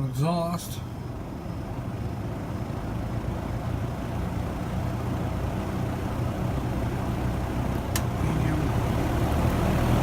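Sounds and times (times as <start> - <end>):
low motor hum: 0.0 - 10.0.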